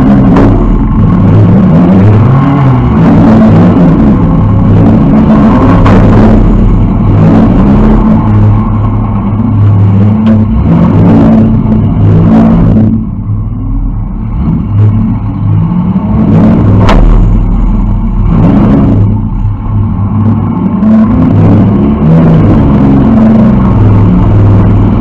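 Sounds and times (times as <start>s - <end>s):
car engine revving loudly: 0.0s - 25.0s
sharp crack: 16.2s - 19.6s.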